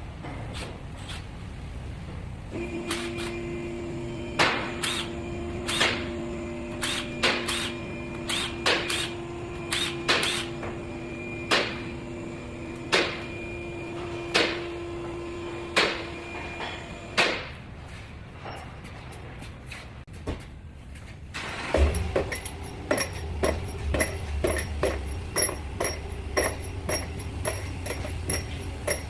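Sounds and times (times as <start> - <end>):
steady machine hum: 1.3 - 17.5, 21.3 - 29.0
sharp metallic knocks: 21.7 - 29.0.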